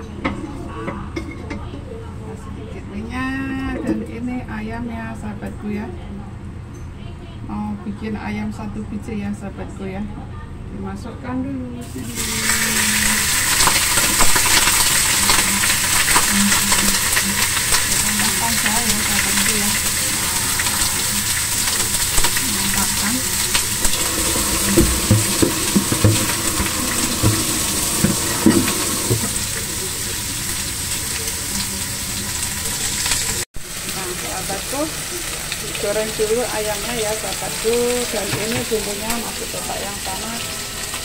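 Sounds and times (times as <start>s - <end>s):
chicken sizzling in a pan: 11.8s - 41.0s.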